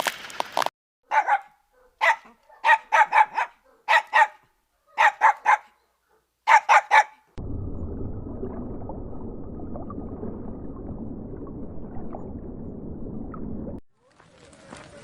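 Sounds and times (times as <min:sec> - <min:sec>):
dog barking: 0:01.0 - 0:07.3.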